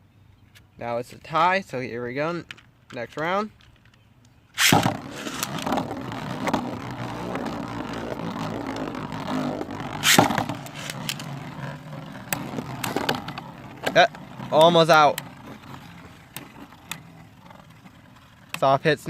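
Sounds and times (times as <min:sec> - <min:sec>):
spinning tops clashing: 0:04.6 - 0:08.5, 0:10.0 - 0:11.5
spinning tops launched with sharp rip: 0:04.6 - 0:17.8
spinning tops scraping plastic stadium: 0:04.6 - 0:19.0.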